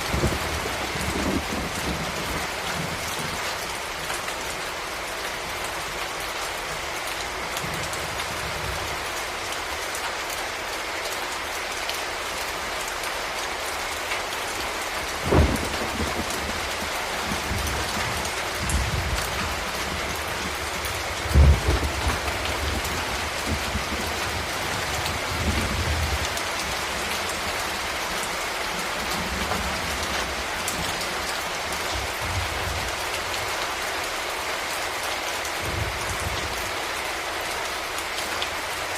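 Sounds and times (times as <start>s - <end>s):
thunder clap: 0.0s - 3.4s, 15.2s - 26.8s
rolling thunder rumbles: 0.0s - 4.6s, 14.9s - 33.5s, 35.6s - 36.7s
heavy rain: 0.0s - 38.9s.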